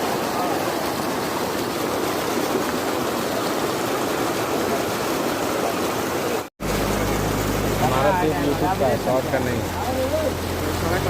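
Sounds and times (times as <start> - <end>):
floodwater rushing: 0.0 - 11.0
motor running steadily: 6.6 - 11.0.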